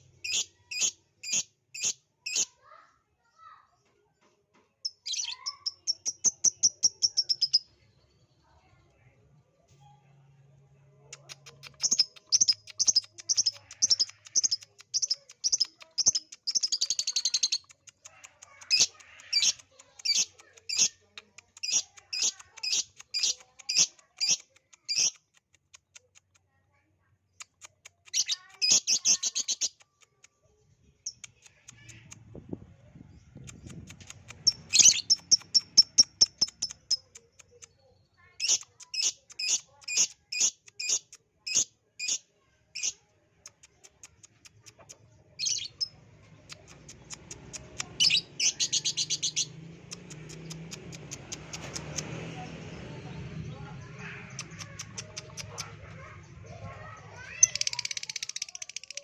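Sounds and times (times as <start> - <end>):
lovebird chirping and trilling: 0.0 - 2.6, 4.8 - 7.7, 11.1 - 25.3, 27.4 - 30.0, 33.1 - 37.7, 38.4 - 51.8, 54.0 - 59.0.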